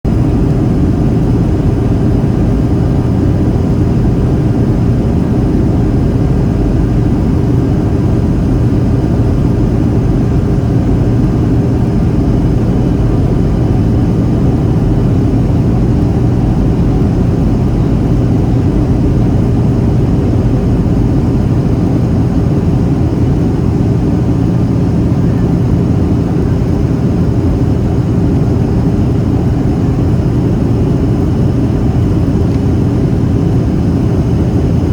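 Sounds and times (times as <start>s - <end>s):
airplane cabin engine drone: 0.1s - 34.9s
faint steady whine tones: 0.1s - 34.9s.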